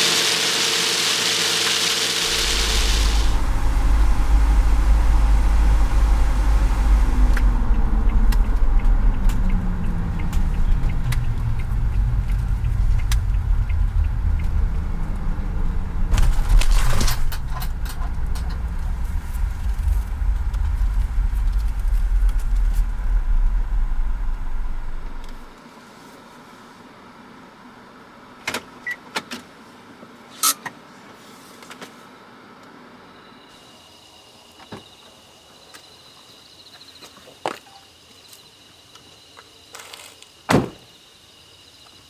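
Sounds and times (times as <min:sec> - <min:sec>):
burst of noise: 0:01.8 - 0:25.5
vehicle engine and road rumble: 0:02.2 - 0:25.6.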